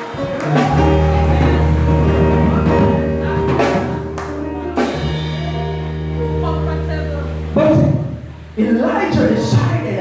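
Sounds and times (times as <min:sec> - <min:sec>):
live band music: 0:00.0 - 0:10.0
drum or cymbal hits: 0:00.5 - 0:06.8.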